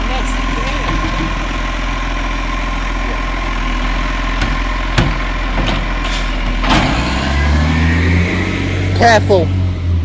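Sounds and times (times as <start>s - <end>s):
diesel truck engine idling: 0.0s - 7.3s
sharp knocks and clatters: 4.4s - 7.1s.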